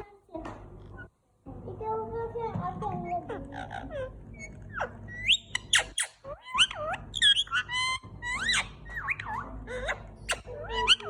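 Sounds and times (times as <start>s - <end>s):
parrot whistling and squawking: 3.5s - 11.0s.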